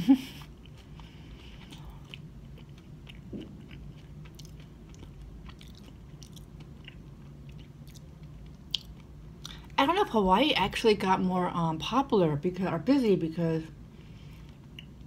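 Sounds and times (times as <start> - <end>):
steady low hum: 0.0 - 15.0
quiet chewing with mouth clicks: 0.4 - 9.8.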